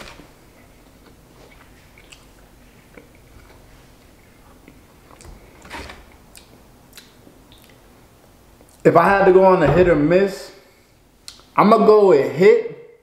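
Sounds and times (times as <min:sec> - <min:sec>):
quiet chewing: 0:00.5 - 0:05.5, 0:06.2 - 0:07.9.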